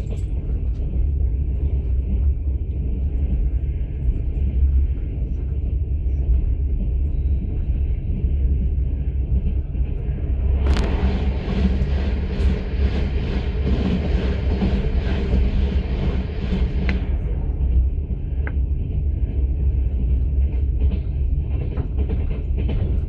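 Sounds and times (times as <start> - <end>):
train wheels rumbling on rails: 0.0 - 23.0
high rushing noise: 9.7 - 18.0.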